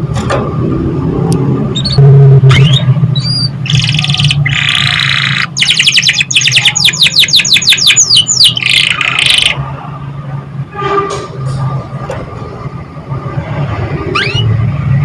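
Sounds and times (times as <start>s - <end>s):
canary singing: 1.8s - 9.6s, 14.1s - 14.6s.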